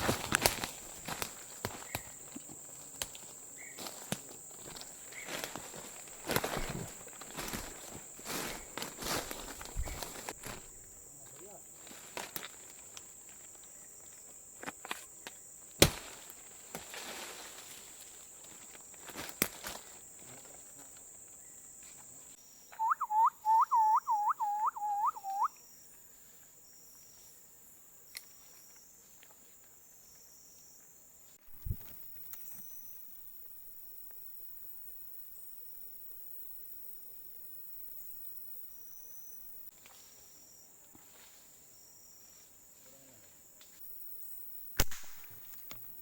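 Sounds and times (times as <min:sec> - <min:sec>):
high insect drone: 0:00.0 - 0:46.0
upward sweeping whistled notes: 0:22.8 - 0:25.5.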